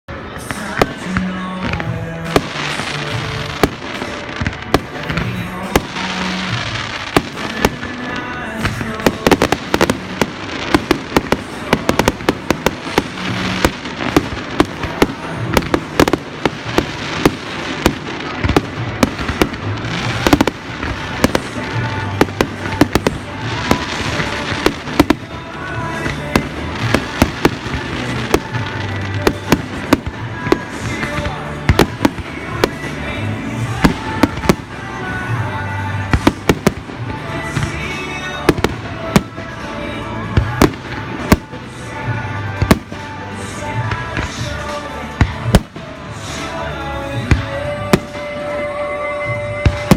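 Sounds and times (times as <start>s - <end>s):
fireworks bangs and crackles: 0.1s - 49.9s.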